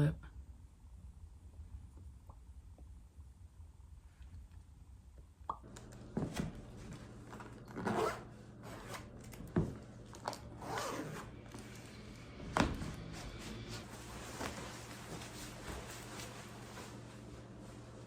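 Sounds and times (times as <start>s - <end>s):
rustles and scrapes of objects: 8.6s - 18.0s.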